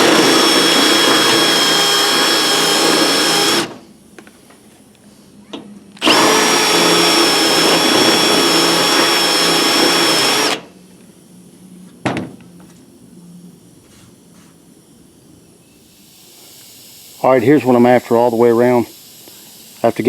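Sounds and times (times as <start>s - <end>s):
electric drill drilling metal: 0.0s - 3.8s, 6.0s - 10.7s.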